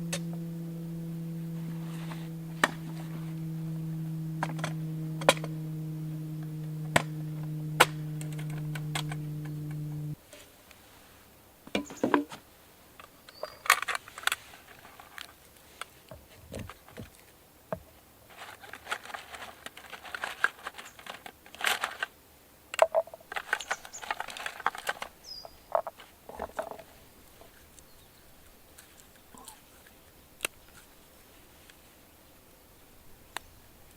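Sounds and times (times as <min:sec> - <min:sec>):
sharp clicks: 0:06.4 - 0:10.2.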